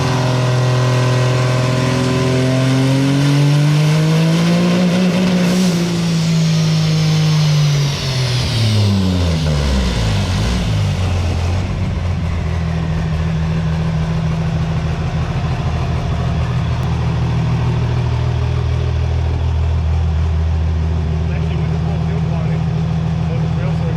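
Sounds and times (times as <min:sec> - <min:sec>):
diesel engine revving and idling: 0:00.0 - 0:23.9.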